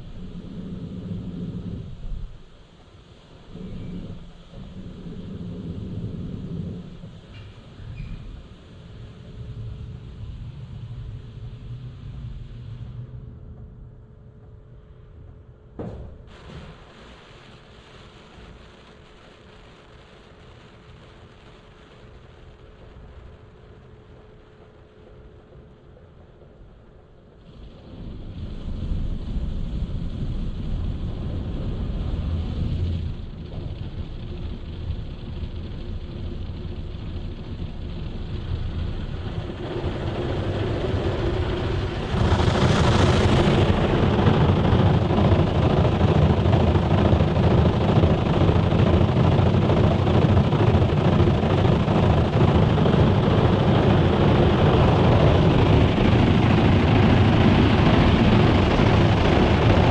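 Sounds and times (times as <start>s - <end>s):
car wash rushing noise: 27.5s - 59.9s.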